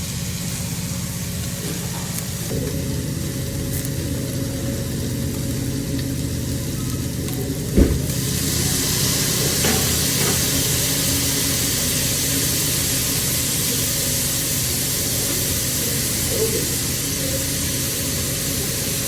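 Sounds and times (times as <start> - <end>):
seafood sizzling on a grill: 0.0 - 19.0
thump: 7.8 - 8.2.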